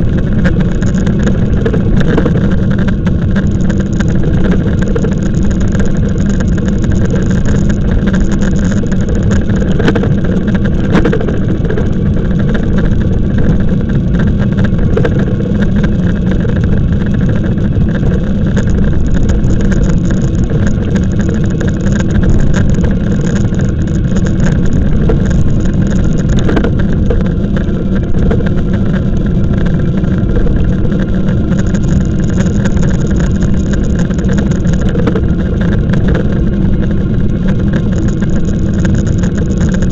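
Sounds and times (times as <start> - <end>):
road rumble: 0.0 - 39.9
wind on microphone: 0.0 - 39.9.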